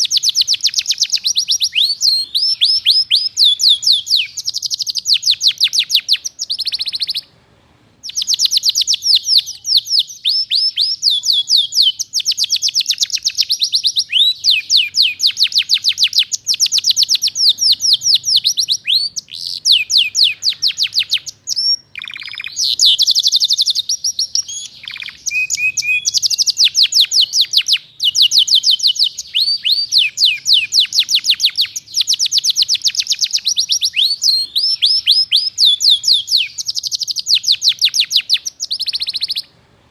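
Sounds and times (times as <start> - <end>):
canary singing: 0.0 - 7.3, 8.0 - 39.5.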